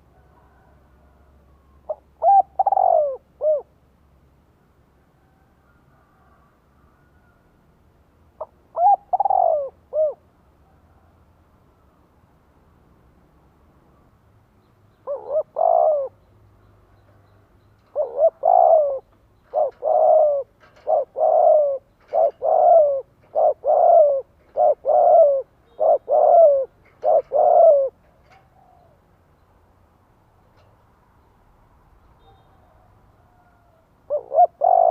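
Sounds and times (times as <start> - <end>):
dove cooing: 1.8 - 3.8, 8.4 - 10.3, 15.0 - 16.2, 17.8 - 29.0, 32.2 - 34.9.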